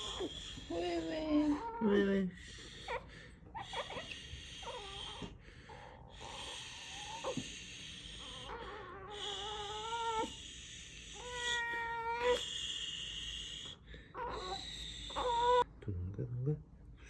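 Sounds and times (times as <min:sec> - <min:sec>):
baby crying: 0:00.0 - 0:03.0, 0:06.2 - 0:10.4, 0:11.1 - 0:12.6, 0:14.2 - 0:15.6
baby whimpering: 0:00.0 - 0:05.4, 0:06.1 - 0:13.4, 0:14.2 - 0:15.7.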